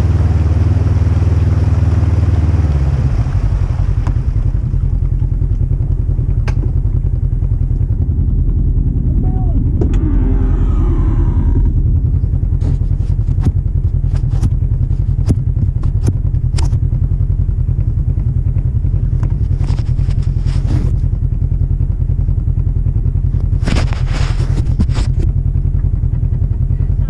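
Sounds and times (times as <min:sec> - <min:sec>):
engine low rumble: 0:00.0 - 0:27.0
vehicle knocks and rattles: 0:05.0 - 0:08.2.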